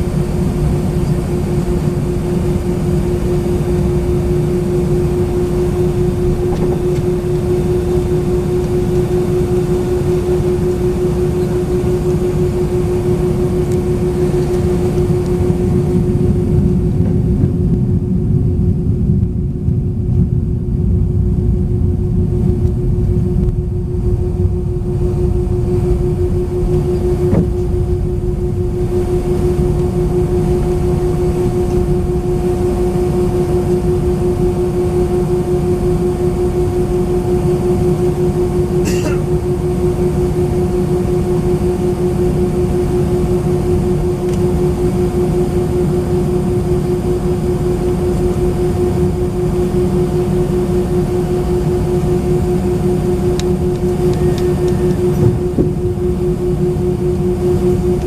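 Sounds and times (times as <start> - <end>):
jet engines humming in cabin: 0.0 - 58.0.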